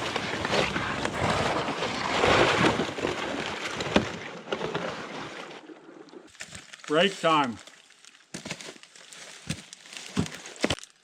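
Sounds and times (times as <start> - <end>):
footsteps in wet snow: 6.3 - 11.0.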